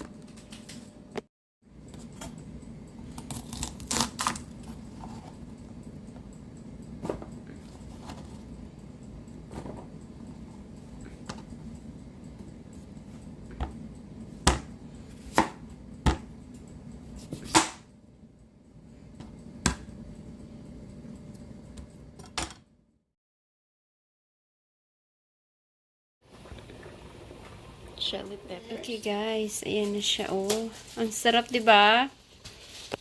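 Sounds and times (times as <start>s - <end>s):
low hum: 1.1s - 23.0s
knife chopping on cutting board: 14.4s - 14.7s, 15.3s - 16.3s.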